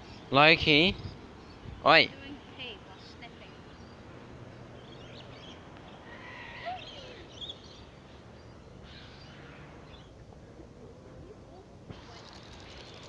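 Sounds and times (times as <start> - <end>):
outdoor background noise: 0.0 - 13.0
short bird calls: 4.8 - 10.6.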